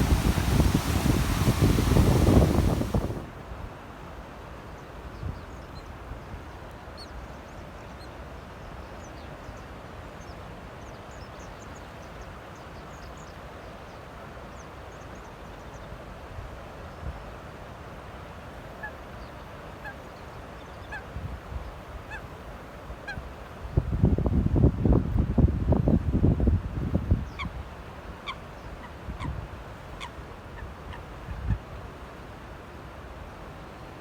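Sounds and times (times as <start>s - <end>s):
strong wind blowing: 0.0s - 3.4s.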